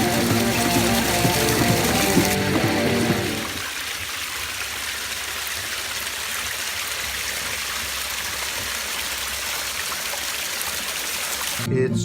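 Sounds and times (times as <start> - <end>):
running water rushing: 0.0 - 11.7.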